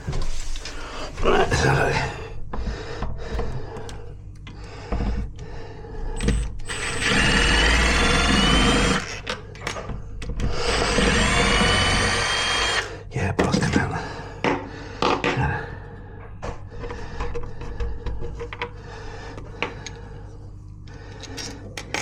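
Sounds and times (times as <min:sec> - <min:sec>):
cordless drill motor whine: 0:06.2 - 0:09.3, 0:10.4 - 0:12.9.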